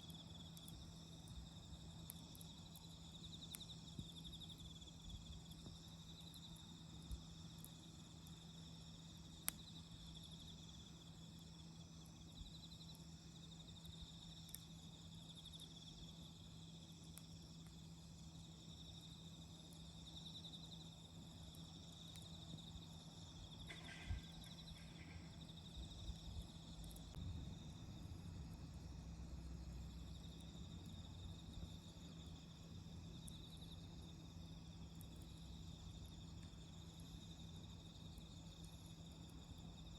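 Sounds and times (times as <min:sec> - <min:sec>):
insects trilling: 0:00.0 - 0:39.9
campfire pops: 0:00.1 - 0:11.4, 0:21.0 - 0:27.4.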